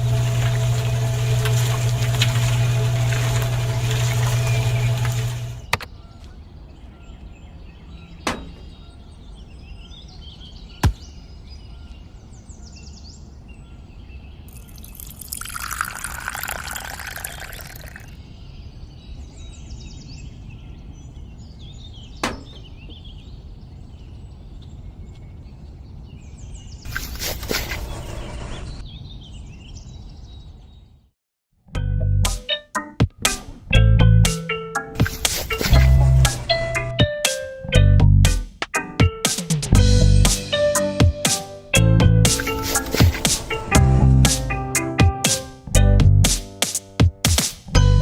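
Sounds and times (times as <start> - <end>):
small birds chirping: 4.2 - 31.1.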